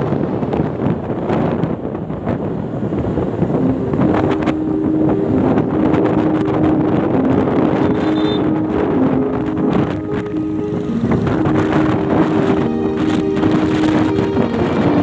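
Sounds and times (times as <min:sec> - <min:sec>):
wind buffeting microphone: 0:00.0 - 0:15.0
simple tune of held notes: 0:03.5 - 0:15.0.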